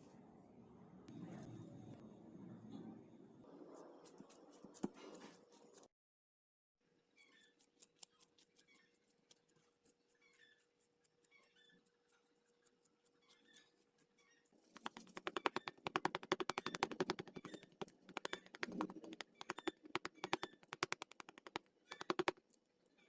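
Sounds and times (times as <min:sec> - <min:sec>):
rapid sharp clicking taps: 0:14.8 - 0:22.4.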